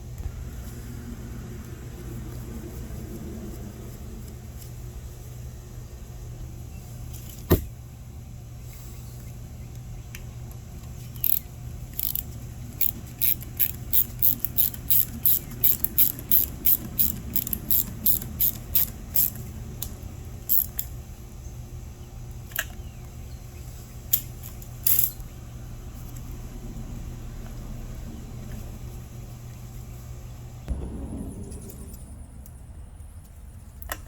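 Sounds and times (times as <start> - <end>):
steady low hum: 0.0 - 34.0
ratchet wrench clicking: 11.2 - 19.4, 20.5 - 20.9, 24.1 - 25.2.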